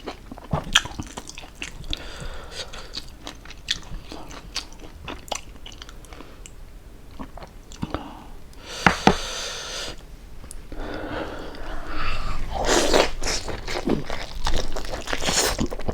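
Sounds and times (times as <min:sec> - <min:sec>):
chewing crispy fried pork: 0:00.0 - 0:06.5, 0:12.6 - 0:15.9.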